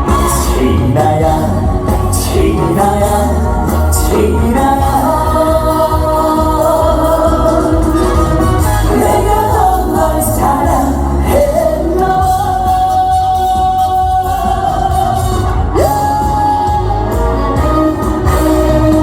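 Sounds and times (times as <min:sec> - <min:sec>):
man singing live: 0:00.0 - 0:19.0
music with heavy bass: 0:00.0 - 0:19.0.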